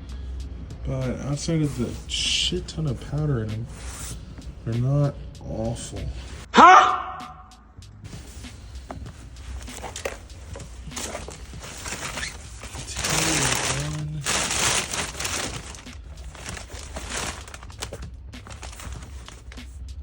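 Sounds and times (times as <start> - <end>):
items being rummaged through: 8.1 - 19.8.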